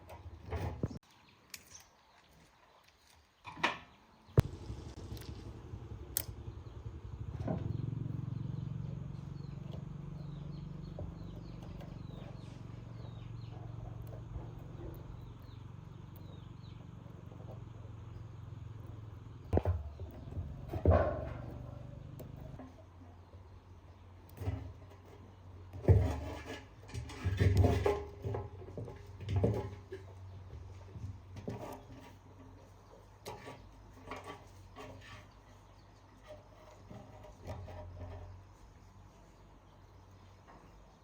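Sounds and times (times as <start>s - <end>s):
small birds chirping: 0.0s - 25.9s, 28.2s - 41.0s
steady low hum: 4.4s - 25.8s.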